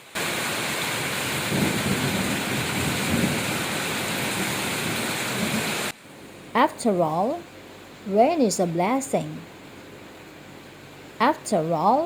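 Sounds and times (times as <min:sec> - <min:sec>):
heavy rain falling: 0:00.0 - 0:06.0.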